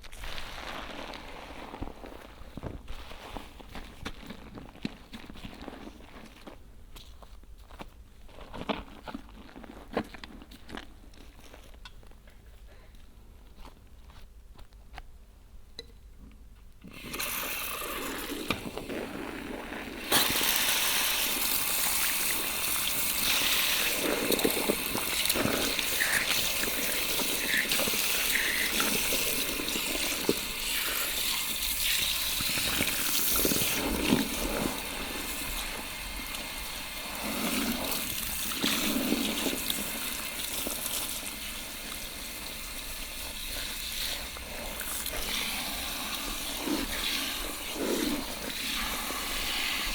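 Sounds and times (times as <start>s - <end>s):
shower spray running over hair: 20.0s - 49.9s.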